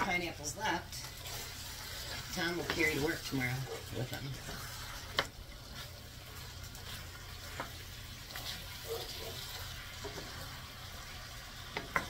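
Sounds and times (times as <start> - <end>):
food sizzling in a skillet: 0.0 - 12.0
wooden spoon scraping and tapping: 1.2 - 8.6, 9.9 - 10.6, 11.7 - 12.0.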